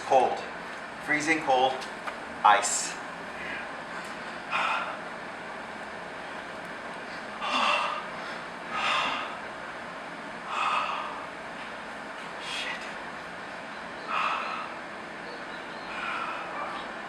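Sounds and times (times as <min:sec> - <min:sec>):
man breathing sharply: 0:03.3 - 0:05.0, 0:07.0 - 0:09.4, 0:10.4 - 0:11.3, 0:14.1 - 0:14.9, 0:15.9 - 0:16.8.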